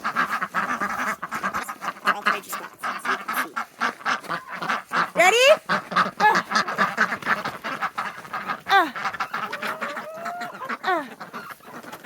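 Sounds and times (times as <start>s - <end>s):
downward-sliding duck calls: 0.0s - 12.0s
ducks quacking: 0.0s - 12.0s.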